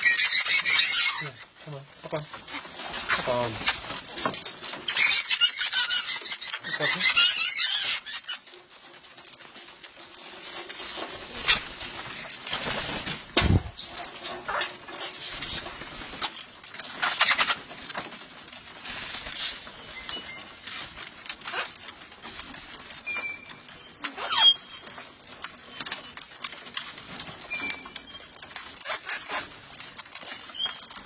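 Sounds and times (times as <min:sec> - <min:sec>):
parrots flapping wings: 0:00.0 - 0:31.0.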